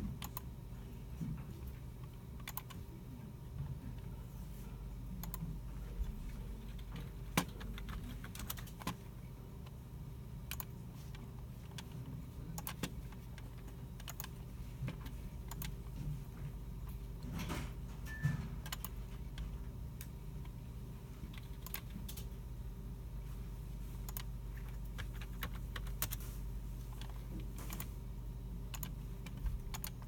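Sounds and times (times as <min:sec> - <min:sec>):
steady low hum: 0:00.0 - 0:30.0
computer keyboard keystrokes: 0:00.1 - 0:00.5, 0:02.0 - 0:02.8, 0:05.2 - 0:05.4, 0:06.6 - 0:09.0, 0:10.5 - 0:10.8, 0:12.6 - 0:15.8, 0:18.6 - 0:19.4, 0:21.3 - 0:22.3, 0:24.0 - 0:26.2, 0:28.7 - 0:30.0
computer mouse clicks: 0:00.2 - 0:00.5, 0:02.0 - 0:02.8, 0:05.2 - 0:05.4, 0:06.6 - 0:09.0, 0:10.5 - 0:12.0, 0:12.6 - 0:15.8, 0:18.6 - 0:19.4, 0:21.3 - 0:22.3, 0:24.0 - 0:26.2, 0:28.7 - 0:30.0.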